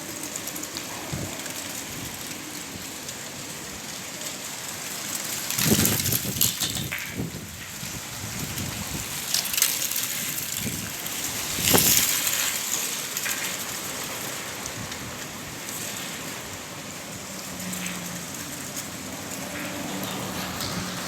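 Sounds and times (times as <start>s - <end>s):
rain: 0.0s - 21.0s
strong wind blowing: 10.3s - 12.2s.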